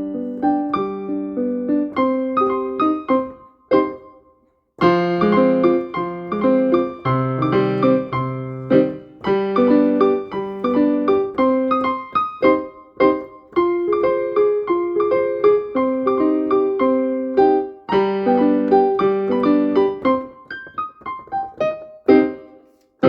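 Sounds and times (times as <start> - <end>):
piano keyboard melody: 0.0 - 22.9.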